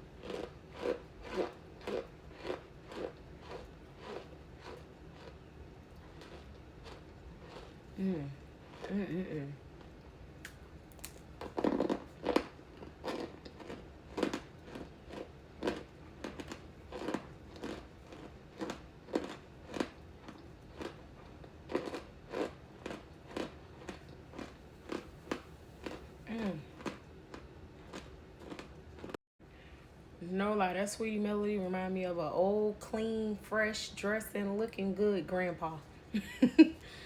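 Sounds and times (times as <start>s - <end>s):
person chewing crunchy chunks: 0.0s - 9.1s, 9.7s - 29.2s
person humming: 8.0s - 9.6s.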